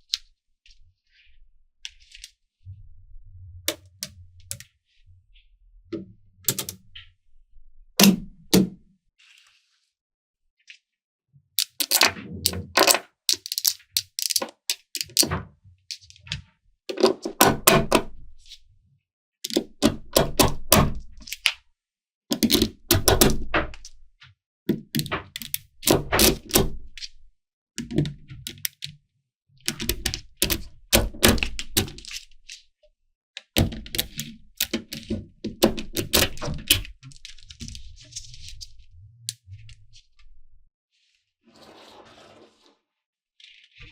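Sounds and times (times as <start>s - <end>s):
magnetic balls clicking together: 11.6s - 15.2s.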